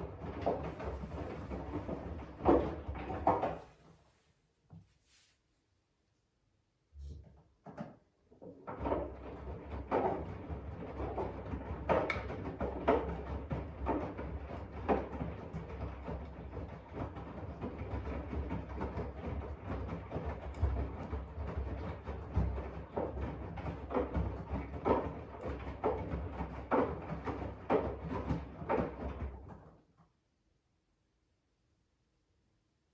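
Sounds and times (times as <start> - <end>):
washing machine drum sloshing: 0.0 - 3.6.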